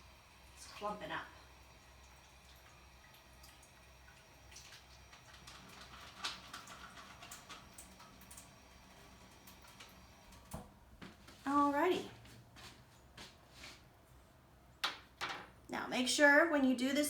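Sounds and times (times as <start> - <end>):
light water sounds: 0.0 - 11.5.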